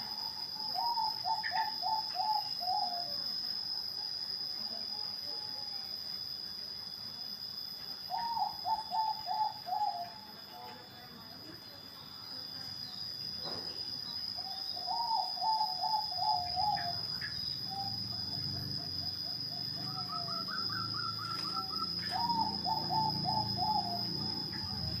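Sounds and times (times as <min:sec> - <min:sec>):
dove cooing: 0:00.0 - 0:03.2, 0:08.1 - 0:10.3, 0:14.4 - 0:25.0.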